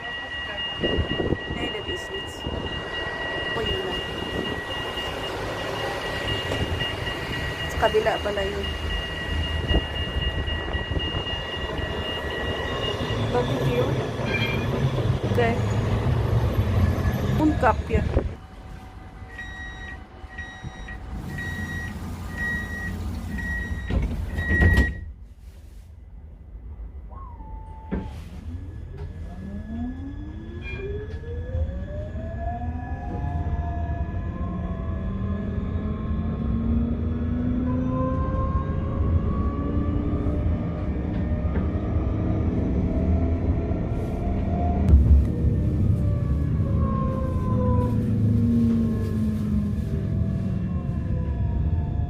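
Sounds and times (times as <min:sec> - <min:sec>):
high warning beeps: 0:00.0 - 0:25.1
tram rumble: 0:00.0 - 0:52.0
doors closing with knocks: 0:23.4 - 0:25.1.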